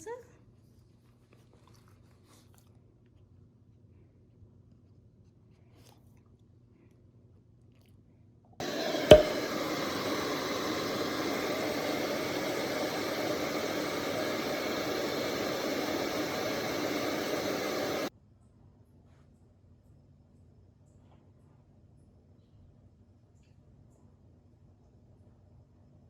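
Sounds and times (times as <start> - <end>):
sharp click: 8.6 - 18.1
steady rushing noise: 8.6 - 18.1.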